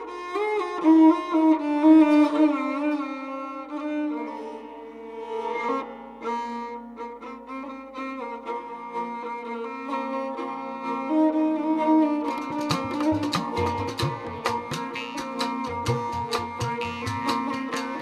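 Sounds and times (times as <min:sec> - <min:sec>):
bowed string melody over drone: 0:03.9 - 0:18.0
rhythmic percussive strikes: 0:12.3 - 0:18.0.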